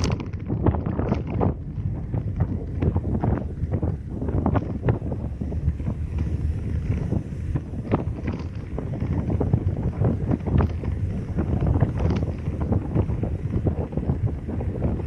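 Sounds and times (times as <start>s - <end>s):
car driving rumble: 0.0s - 15.0s
wind buffeting microphone: 0.0s - 15.0s.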